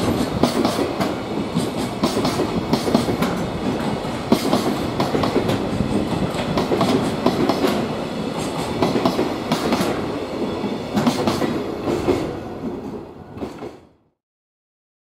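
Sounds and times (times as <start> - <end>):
train wheels clacking over rail joints: 0.0 - 10.0, 10.9 - 12.3.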